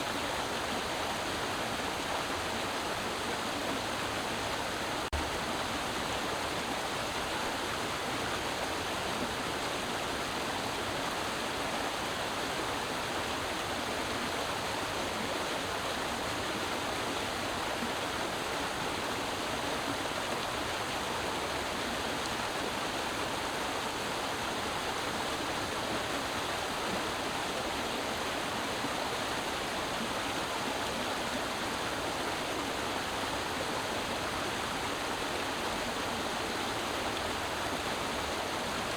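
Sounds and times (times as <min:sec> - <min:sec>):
creek water running over rocks: 0:00.0 - 0:38.9.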